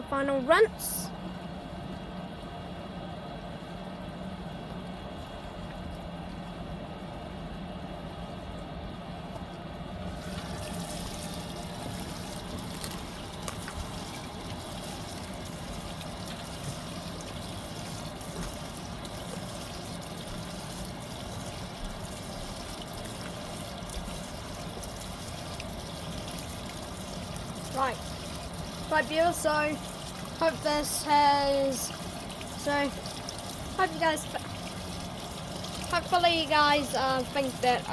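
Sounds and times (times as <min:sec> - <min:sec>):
steady low hum: 0:00.0 - 0:37.9
water pouring into tub: 0:10.1 - 0:37.9.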